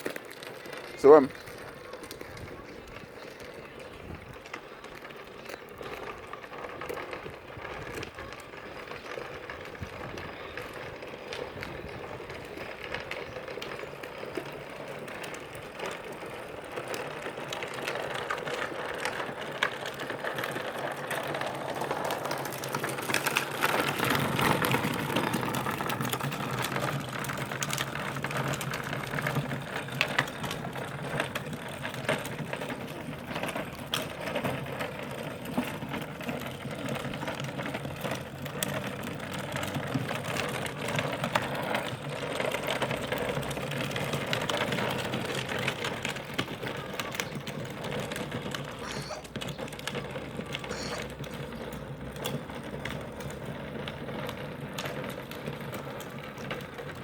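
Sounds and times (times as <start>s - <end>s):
toy motor and gears whirring: 48.8s - 49.4s, 50.5s - 51.4s.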